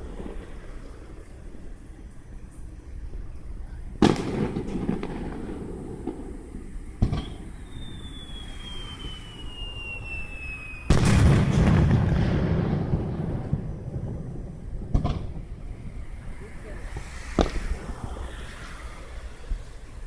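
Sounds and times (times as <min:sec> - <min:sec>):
fireworks bangs: 0:00.0 - 0:18.6
rumbling crackle: 0:00.0 - 0:19.1
whistle falling in pitch: 0:07.2 - 0:11.0.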